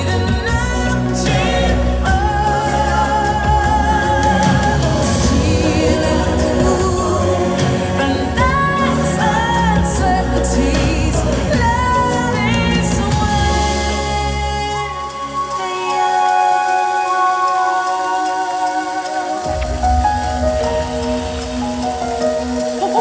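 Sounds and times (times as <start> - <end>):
steady bass: 0.0 - 15.6.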